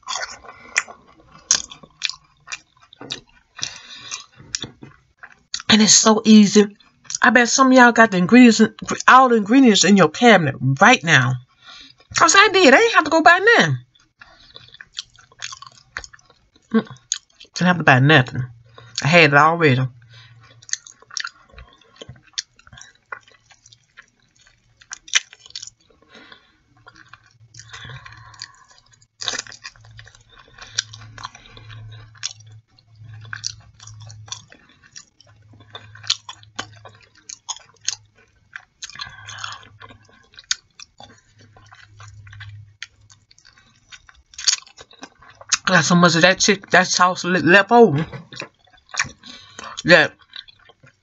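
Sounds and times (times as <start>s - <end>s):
chewing and lip smacking: 0.0s - 5.7s, 6.7s - 7.2s, 11.4s - 12.2s, 13.8s - 17.6s, 18.5s - 19.0s, 19.9s - 45.7s, 48.0s - 51.0s.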